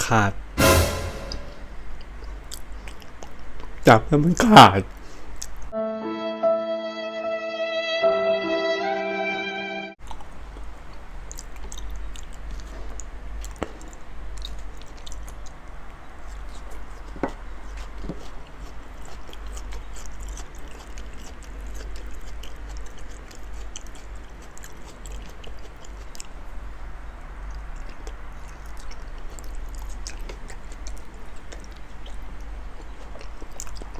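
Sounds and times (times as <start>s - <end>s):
wet chewing mouth sounds: 2.2s - 3.8s, 10.0s - 26.5s, 27.3s - 33.9s.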